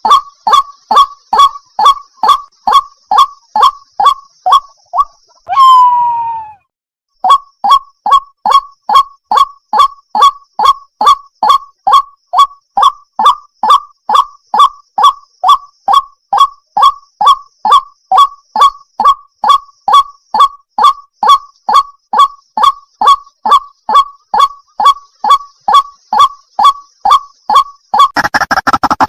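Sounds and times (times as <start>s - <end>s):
water hen calling: 0.0s - 6.6s.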